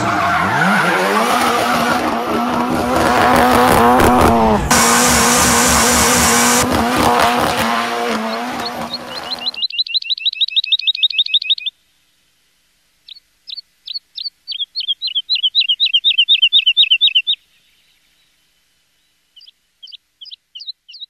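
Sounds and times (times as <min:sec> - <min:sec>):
small bird singing high chirps: 0:08.3 - 0:11.8, 0:13.0 - 0:21.0.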